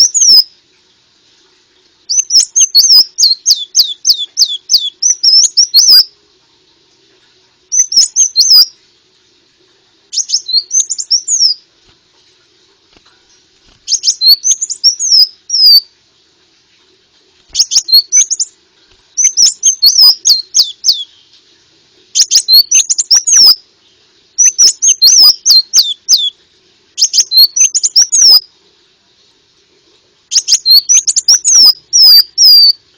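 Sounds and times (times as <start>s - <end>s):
bird song of high sweeping chirps: 0.0s - 0.5s, 2.1s - 6.1s, 7.7s - 8.8s, 10.1s - 11.6s, 13.2s - 15.9s, 17.5s - 18.6s, 19.2s - 21.4s, 22.1s - 26.4s, 27.0s - 28.5s, 30.3s - 32.8s
faint steady hum: 0.0s - 32.9s.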